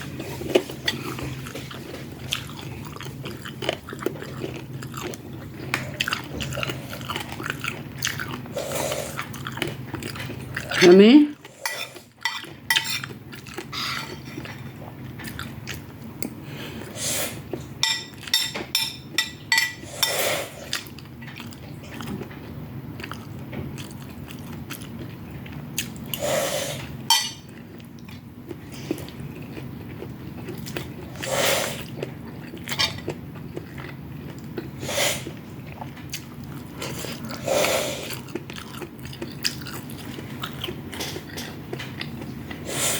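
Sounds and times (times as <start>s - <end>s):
chewing and mouth sounds: 0.0s - 16.9s, 20.6s - 42.8s
low steady hum: 0.0s - 42.9s.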